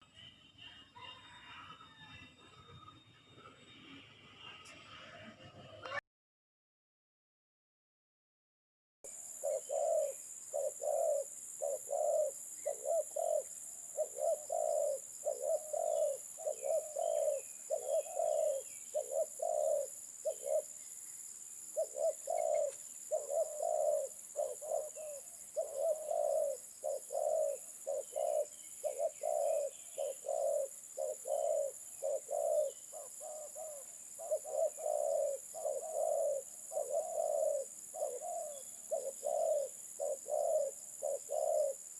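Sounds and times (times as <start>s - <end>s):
dove cooing: 9.1s - 41.9s
small birds chirping: 9.1s - 41.9s.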